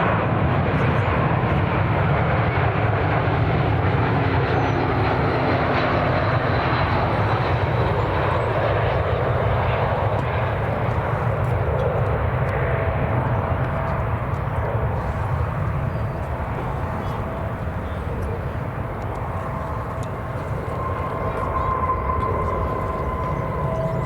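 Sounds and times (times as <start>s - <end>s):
jet engines roaring: 0.0s - 24.0s
faint high whine: 13.3s - 24.0s.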